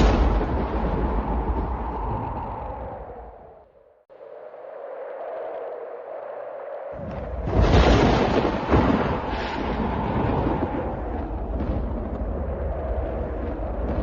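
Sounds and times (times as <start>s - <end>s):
thunder clap and rumble: 0.0s - 3.6s, 7.0s - 14.0s.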